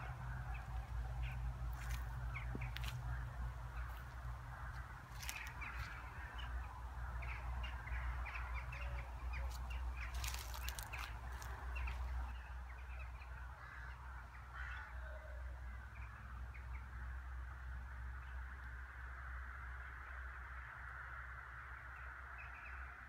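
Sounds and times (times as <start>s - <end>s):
steady low rumble: 0.0s - 14.5s
birds chirping: 0.0s - 17.0s.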